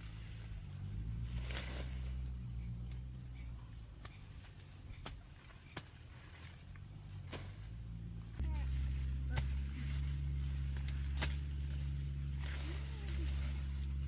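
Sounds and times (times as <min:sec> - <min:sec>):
high-pitched insect call: 0:00.0 - 0:14.0
low rumble: 0:06.2 - 0:14.0.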